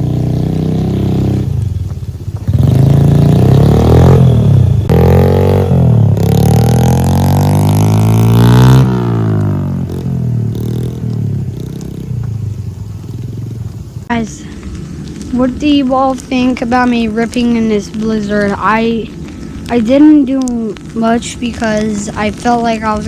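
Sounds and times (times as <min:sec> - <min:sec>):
dirt bike engine revving: 0:00.0 - 0:14.1.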